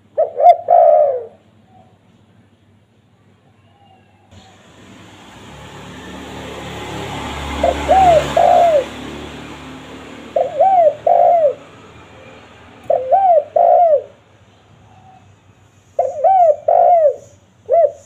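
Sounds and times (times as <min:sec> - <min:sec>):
dove cooing: 0:00.0 - 0:02.0, 0:07.5 - 0:09.1, 0:10.2 - 0:11.8, 0:12.8 - 0:14.2, 0:16.0 - 0:18.0.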